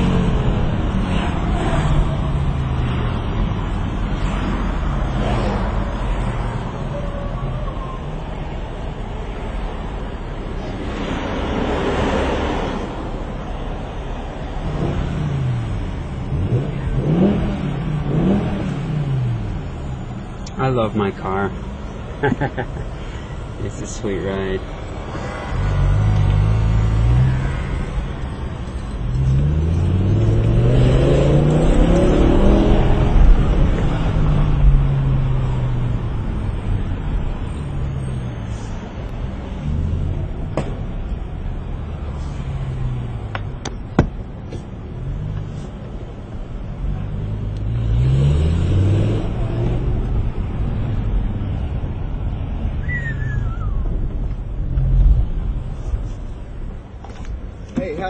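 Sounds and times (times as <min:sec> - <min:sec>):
car engine accelerating: 0:14.6 - 0:20.0, 0:24.9 - 0:43.8, 0:46.5 - 0:56.3
engine rev: 0:14.6 - 0:20.0, 0:25.1 - 0:36.9, 0:46.8 - 0:51.7.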